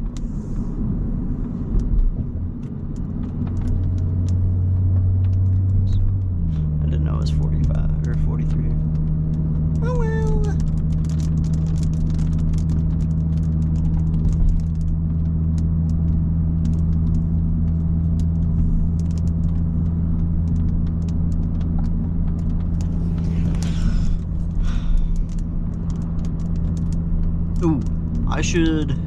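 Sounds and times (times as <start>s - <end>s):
car cabin drone while cruising: 0.0s - 29.0s
rain ticking on car: 0.0s - 29.0s.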